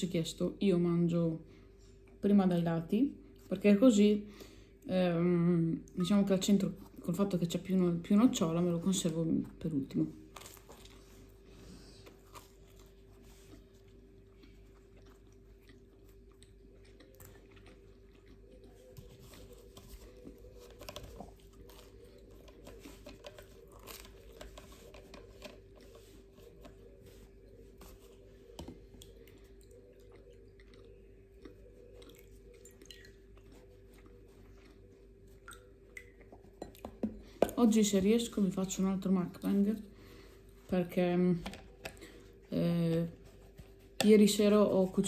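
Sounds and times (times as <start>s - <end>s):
steady low hum: 0.0s - 45.0s
chewing and biting bread: 10.2s - 36.6s.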